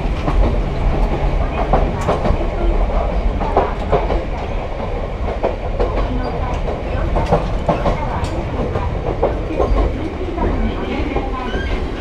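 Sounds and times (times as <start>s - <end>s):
electric train low rumble: 0.0s - 12.0s.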